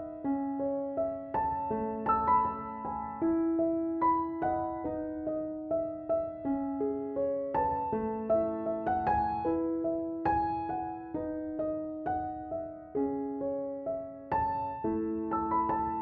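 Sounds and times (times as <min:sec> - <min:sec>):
soft slow piano piece: 0:00.0 - 0:16.0.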